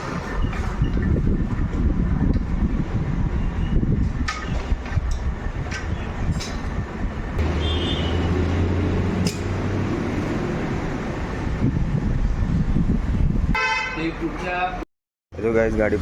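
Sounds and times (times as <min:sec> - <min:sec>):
motorcycle engine rumbling: 0:06.8 - 0:13.5.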